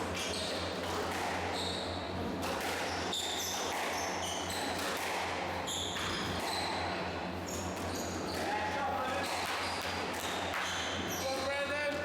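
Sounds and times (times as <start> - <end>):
squash ball struck by racket: 0.0 - 1.5, 2.2 - 6.9, 9.2 - 10.8
shoes squeaking on court floor: 0.1 - 4.9, 5.6 - 11.5.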